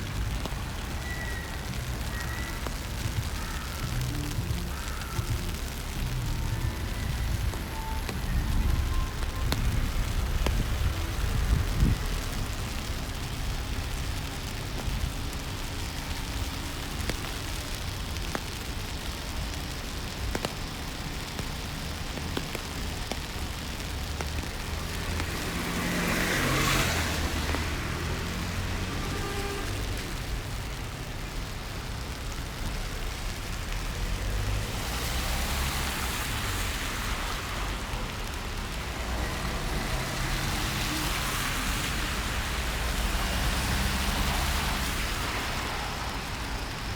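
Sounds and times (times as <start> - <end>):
low traffic rumble: 0.0 - 46.9
rain hissing: 0.0 - 46.9
car swishing past on wet road: 23.0 - 30.9, 33.2 - 46.8.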